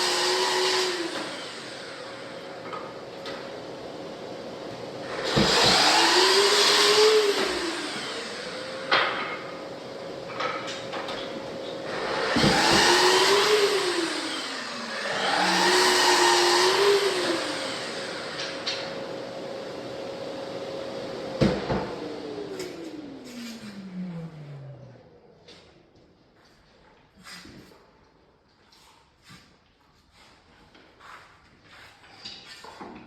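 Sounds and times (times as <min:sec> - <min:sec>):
power tool motor: 0:00.0 - 0:02.2, 0:05.1 - 0:09.0, 0:11.9 - 0:19.0.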